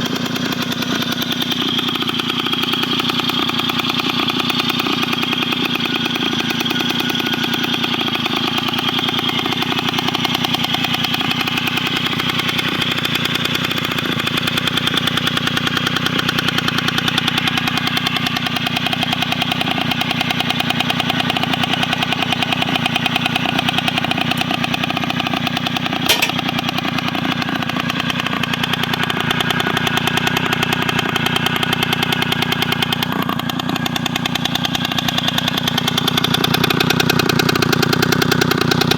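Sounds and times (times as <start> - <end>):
moped engine idling: 0.0 - 38.9
sharp click: 26.1 - 26.5.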